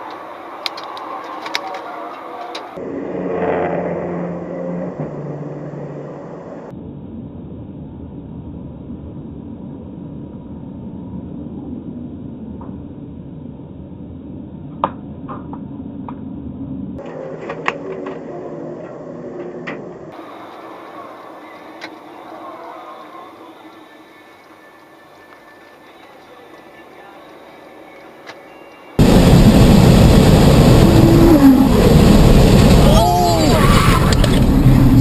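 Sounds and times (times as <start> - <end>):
car engine: 0.0 - 22.4, 29.0 - 35.0
road rumble: 0.0 - 35.0.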